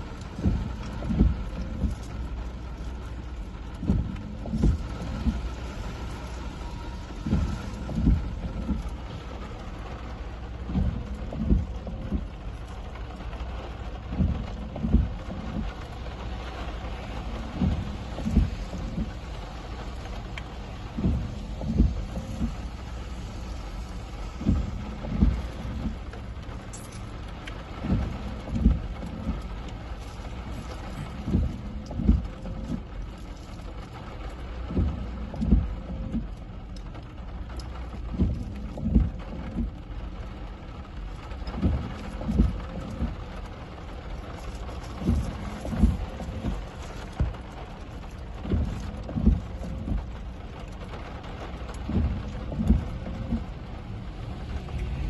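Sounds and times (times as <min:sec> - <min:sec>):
heavy rain hissing: 0:00.0 - 0:55.0
low thumps: 0:06.7 - 0:09.4, 0:20.9 - 0:22.8, 0:51.8 - 0:55.0.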